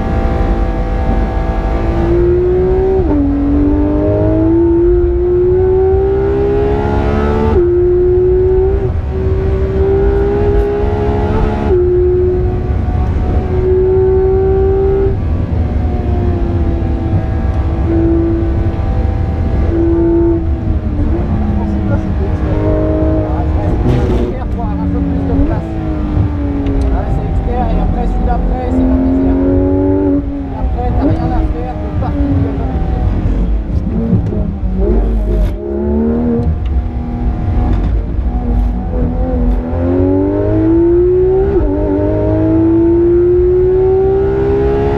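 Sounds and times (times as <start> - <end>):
car engine at high revs: 0.0 - 44.9
heavy low rumble: 7.6 - 44.2.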